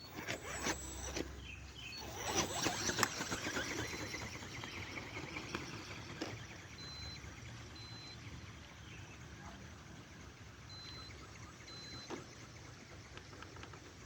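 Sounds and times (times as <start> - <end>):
mechanical wings flapping: 2.1 - 6.7.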